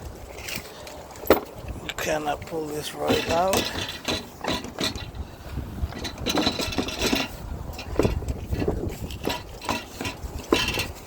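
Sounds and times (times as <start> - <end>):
plastic scraping and knocks: 5.9 - 11.0.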